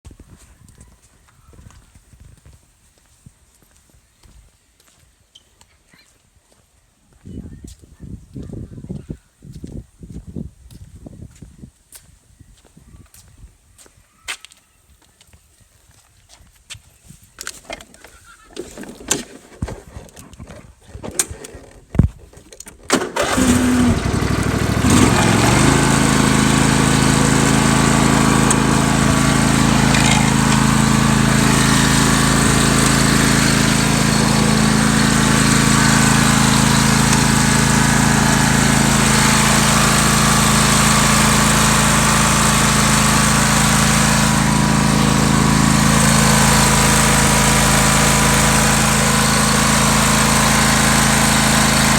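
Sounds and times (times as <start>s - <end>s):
engine starter cranking: 22.7s - 27.0s, 27.6s - 38.5s
tractor engine running: 22.9s - 51.9s.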